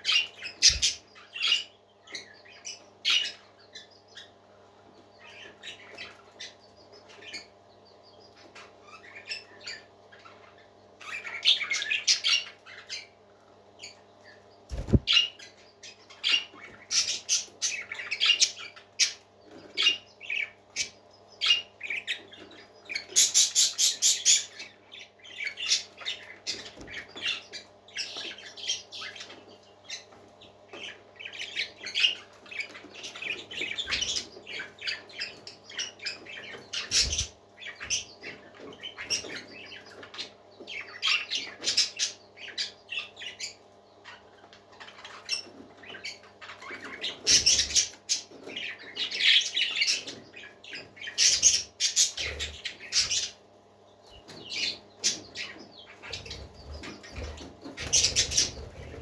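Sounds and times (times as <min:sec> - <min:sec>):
parakeets chirping and squawking: 0:00.1 - 0:04.3, 0:14.7 - 0:30.0, 0:30.7 - 0:53.4, 0:54.2 - 0:59.0.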